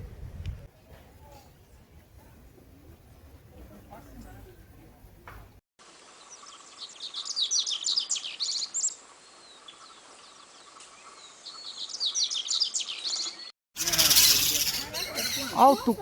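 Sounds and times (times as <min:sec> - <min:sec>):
small birds chirping: 0:06.2 - 0:16.0.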